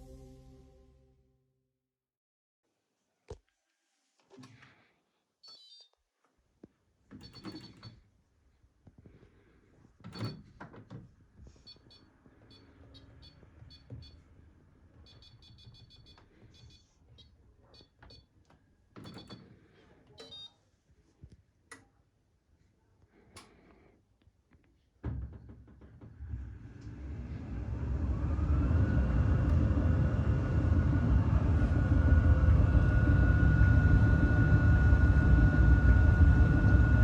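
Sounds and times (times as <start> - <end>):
tumble dryer humming: 27.0 - 37.0.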